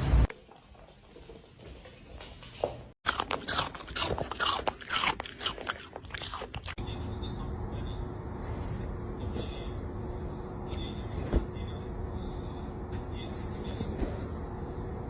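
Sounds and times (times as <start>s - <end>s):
crunchy chewing and biting: 3.0s - 6.8s
steady low hum: 6.7s - 15.0s.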